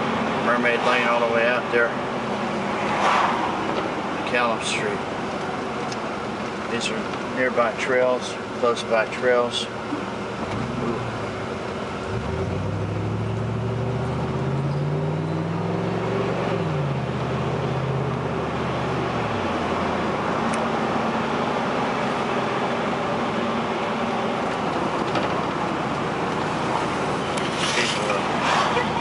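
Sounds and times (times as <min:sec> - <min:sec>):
road and tyre noise: 0:00.0 - 0:29.0
car engine accelerating: 0:10.1 - 0:29.0.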